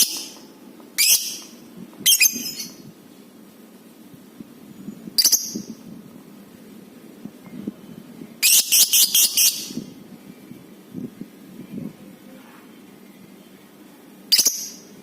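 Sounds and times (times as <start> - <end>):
lovebird shrill calls: 1.0 - 2.8, 5.2 - 5.7, 8.4 - 9.9, 14.3 - 14.8.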